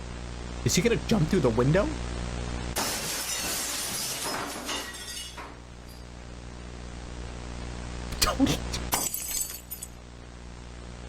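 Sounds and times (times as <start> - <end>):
window glass shattering: 2.8 - 6.0, 8.2 - 9.9
glass shards tinkling: 2.8 - 6.1, 8.8 - 9.9.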